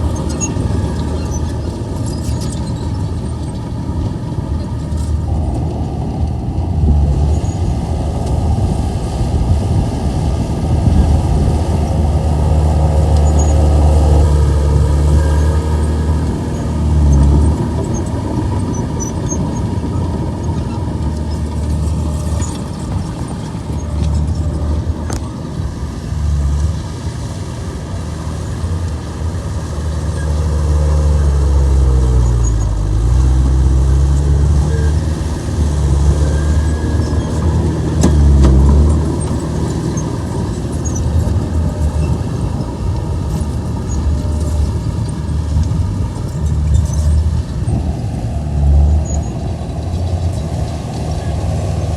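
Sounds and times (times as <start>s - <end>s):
bulldozer diesel engine running: 0.0s - 51.9s.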